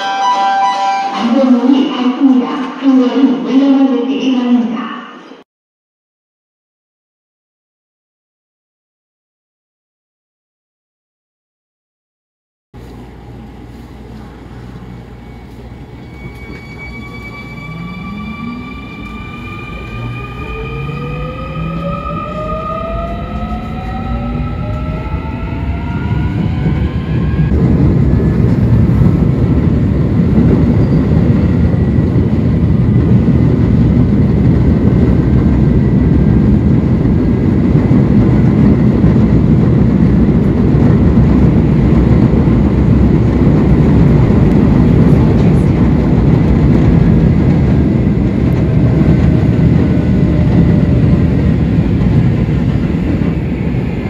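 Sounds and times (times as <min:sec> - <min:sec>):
wheels rumbling on rail: 0:12.8 - 0:54.0
traction motor whine: 0:15.0 - 0:27.5.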